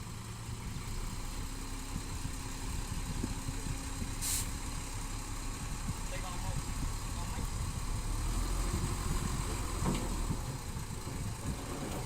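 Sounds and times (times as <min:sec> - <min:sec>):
diesel engines idling: 0:00.0 - 0:12.0
short hiss: 0:04.2 - 0:04.6.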